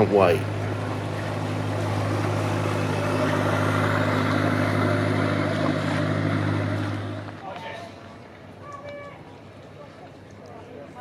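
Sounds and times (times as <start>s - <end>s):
engine humming with hiss: 0.0s - 7.4s.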